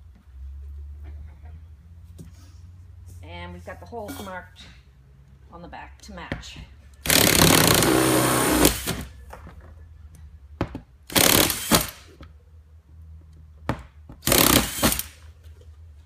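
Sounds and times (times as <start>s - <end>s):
electric drill boring plastic: 7.1s - 8.9s.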